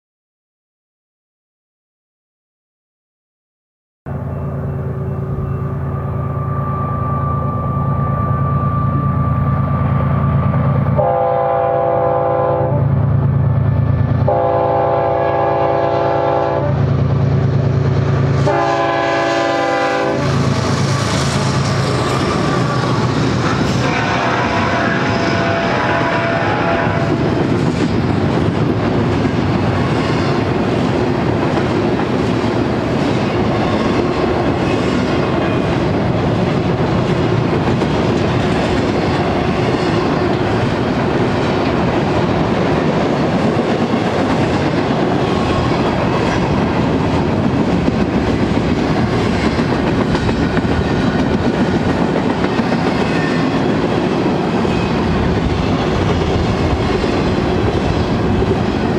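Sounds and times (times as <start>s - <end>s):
freight train wheels clacking: 16.8s - 58.9s.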